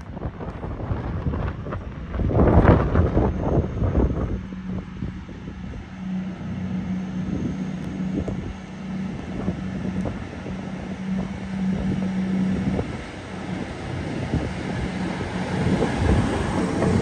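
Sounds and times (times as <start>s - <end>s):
diesel train engine humming: 0.0s - 17.0s
wind buffeting microphone: 0.0s - 17.0s.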